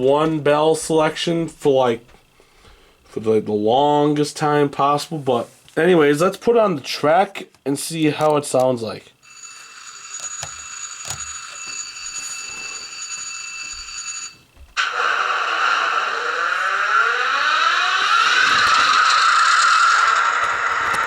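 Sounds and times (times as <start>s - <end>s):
electronic alarm bell ringing: 9.2s - 14.5s
diesel engine sound revving: 15.2s - 20.5s.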